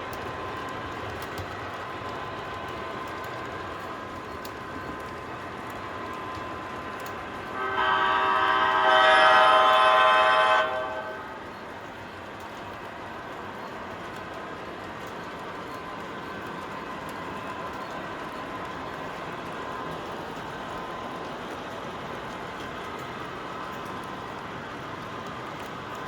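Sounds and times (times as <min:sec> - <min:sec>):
model trains running: 0:00.0 - 0:26.0
model locomotive multi-chime horn: 0:07.4 - 0:11.6.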